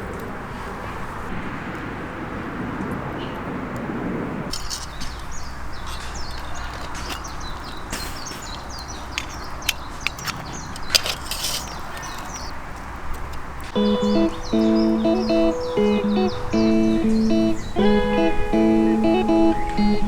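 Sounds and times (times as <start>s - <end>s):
sharp clicks: 4.5s - 16.5s
small birds chirping: 4.5s - 20.0s.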